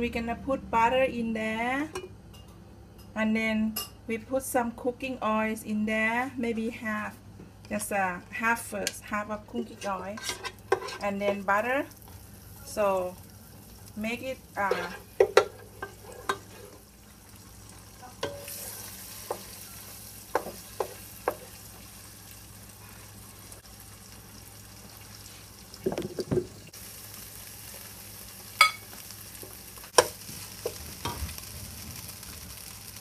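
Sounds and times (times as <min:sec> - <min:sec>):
eggs sizzling in a pot: 0:08.8 - 0:33.0
utensils knocking against pot: 0:14.6 - 0:16.6, 0:18.2 - 0:18.6.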